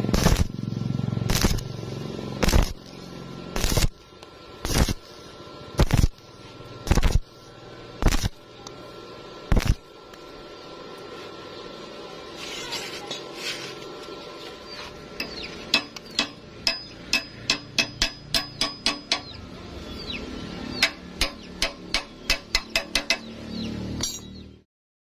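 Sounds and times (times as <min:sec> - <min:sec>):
hammer striking metal: 0:15.2 - 0:19.4, 0:20.7 - 0:23.4, 0:24.0 - 0:24.4.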